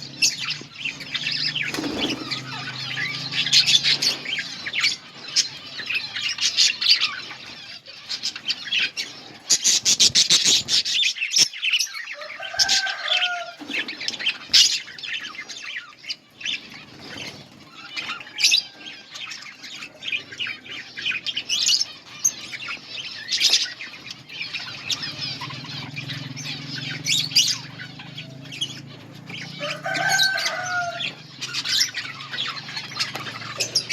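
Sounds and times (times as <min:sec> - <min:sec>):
budgerigars chirping and chattering: 0:00.0 - 0:33.9
wings fluttering: 0:00.2 - 0:10.9, 0:16.5 - 0:19.4, 0:21.0 - 0:33.9.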